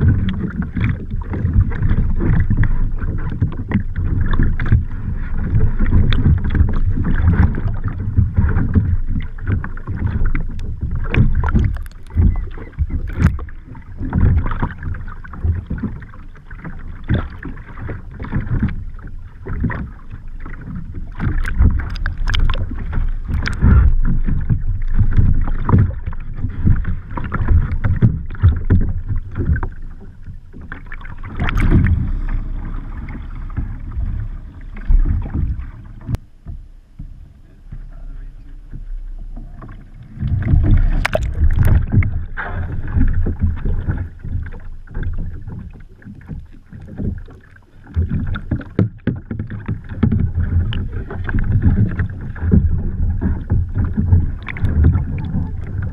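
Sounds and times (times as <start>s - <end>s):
low rumble of water: 0.0s - 55.9s
paddle splashing water: 0.0s - 55.9s.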